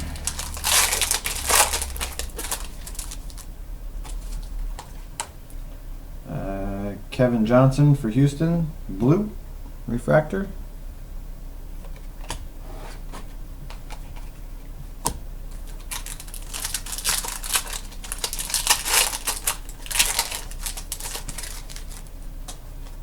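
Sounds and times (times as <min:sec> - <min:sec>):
foil wrapper crinkling: 0:00.0 - 0:04.9, 0:15.5 - 0:22.3.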